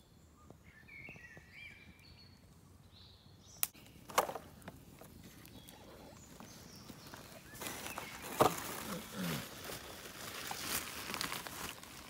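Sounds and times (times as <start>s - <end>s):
faint songbird whistles: 0.0s - 4.0s
crackling snaps: 3.6s - 6.6s.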